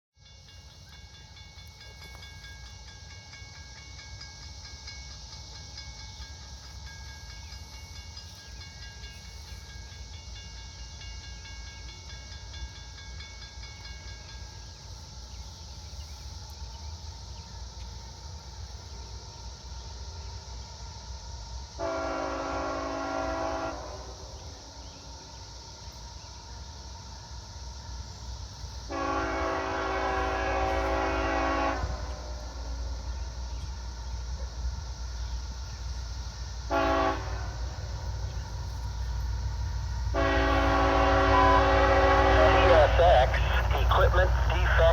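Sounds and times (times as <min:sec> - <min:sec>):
high steady ringing tone: 0:00.2 - 0:19.2
train rumble: 0:00.2 - 0:44.9
locomotive horn blasts: 0:21.8 - 0:24.2, 0:28.9 - 0:32.4, 0:36.7 - 0:37.7, 0:40.1 - 0:44.9.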